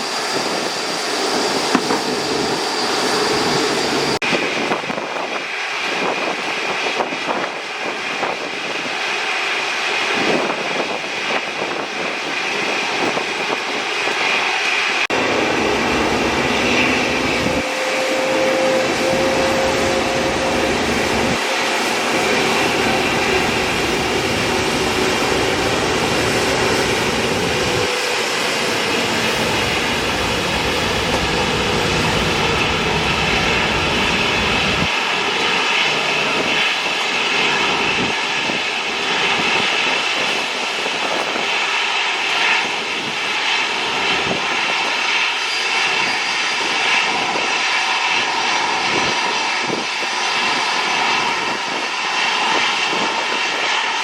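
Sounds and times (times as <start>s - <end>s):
jet engines running: 0.0s - 54.0s
deep rumble: 18.5s - 34.9s.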